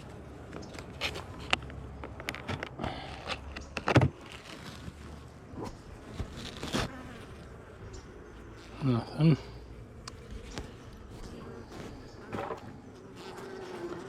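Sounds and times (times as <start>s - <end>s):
scraping and clicking of hive frames: 9.9s - 14.0s.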